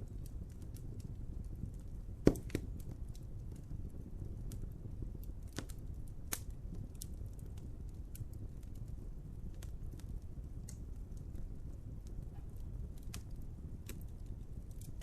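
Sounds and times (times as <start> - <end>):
sharp fire snaps: 0.0 - 15.0
wood fire crackling: 0.0 - 15.0
loud fire pop: 2.2 - 2.8.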